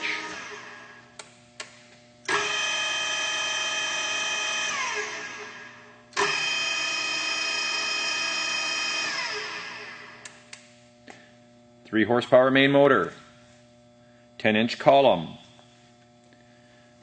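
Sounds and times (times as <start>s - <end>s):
drill spindle whine: 2.3s - 10.2s.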